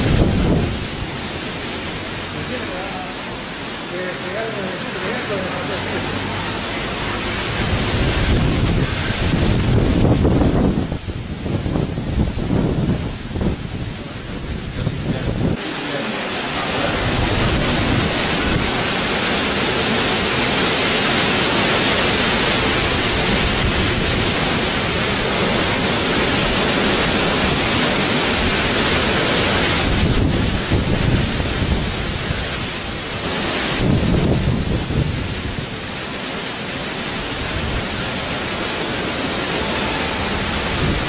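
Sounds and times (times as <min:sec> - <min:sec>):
rain: 0:00.0 - 0:41.0
wind: 0:00.0 - 0:41.0.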